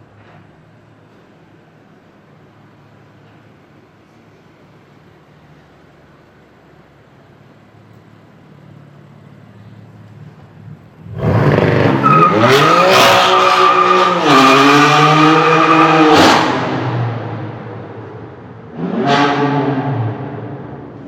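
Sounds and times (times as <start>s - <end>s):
car engine accelerating hard: 11.0s - 17.6s.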